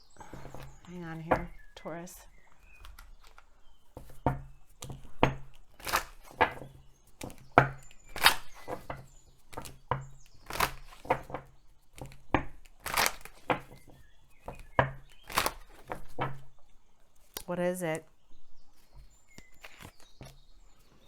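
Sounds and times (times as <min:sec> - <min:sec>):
cards being shuffled: 0:05.7 - 0:07.4, 0:08.1 - 0:09.8, 0:10.4 - 0:13.7, 0:14.6 - 0:16.2, 0:19.4 - 0:20.3.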